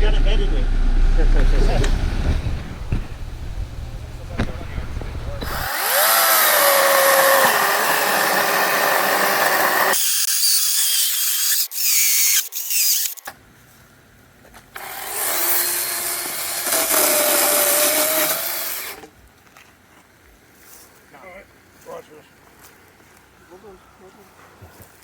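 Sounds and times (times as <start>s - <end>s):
power saw cutting wood: 1.7s - 13.3s, 14.8s - 19.1s.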